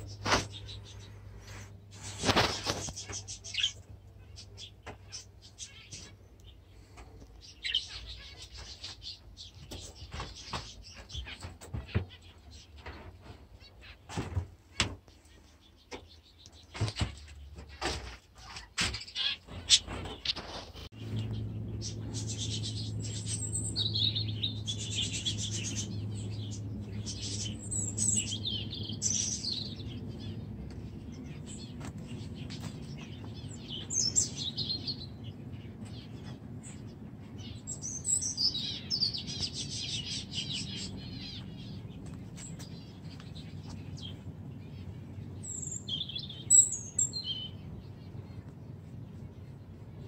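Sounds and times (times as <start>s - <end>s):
small birds chirping and twittering: 0.0s - 50.0s
low steady hum: 20.9s - 50.0s.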